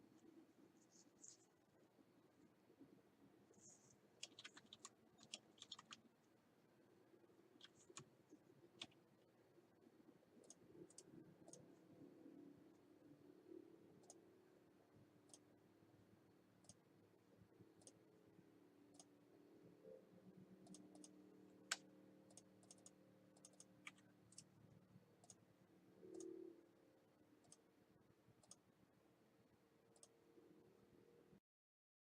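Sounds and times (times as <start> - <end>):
low steady hum: 0.0 - 31.4
faint small clicks: 10.4 - 11.7, 18.9 - 19.1, 20.6 - 24.6, 26.1 - 26.4, 27.4 - 27.7, 28.4 - 28.7, 29.9 - 30.2.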